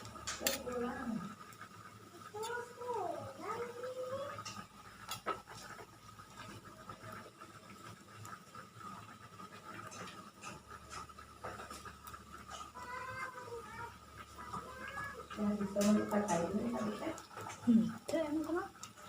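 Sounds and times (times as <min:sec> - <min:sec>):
utensils clinking against dishes: 0:00.2 - 0:00.8.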